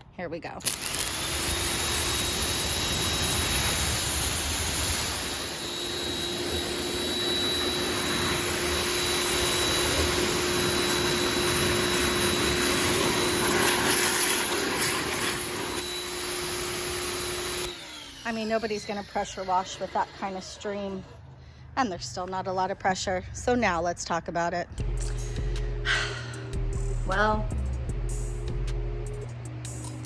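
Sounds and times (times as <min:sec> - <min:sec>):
pressure washer spraying water: 0:00.6 - 0:20.9.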